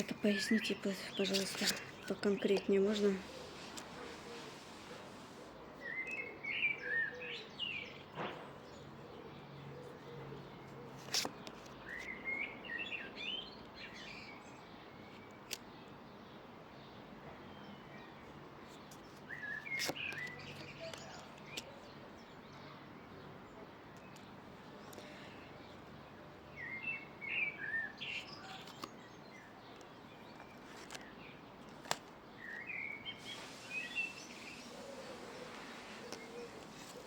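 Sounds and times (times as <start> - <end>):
faint outdoor hiss: 0.0 - 37.0
songbird chirping: 0.0 - 37.0.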